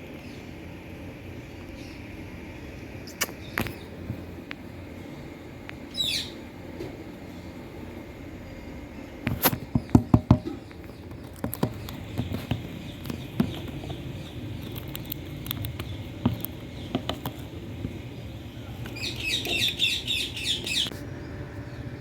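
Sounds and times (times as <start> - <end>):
sharp clicks and taps: 9.3 - 18.0.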